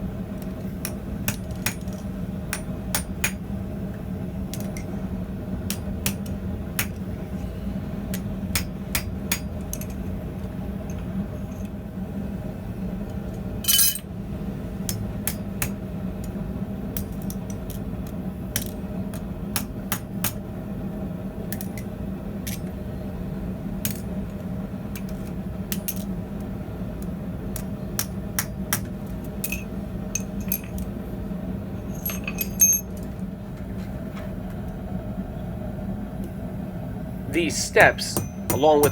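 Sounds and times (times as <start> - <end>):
hammer striking anvil: 13.6 - 14.0
light metal taps and clinks: 13.6 - 14.0, 29.4 - 30.9, 31.8 - 33.1.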